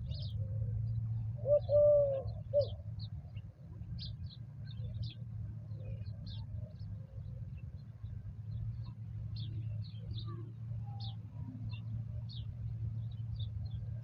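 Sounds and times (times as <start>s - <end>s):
dove cooing: 0.0s - 2.8s
small birds chirping: 0.0s - 14.0s
steady low rumble: 0.0s - 14.0s.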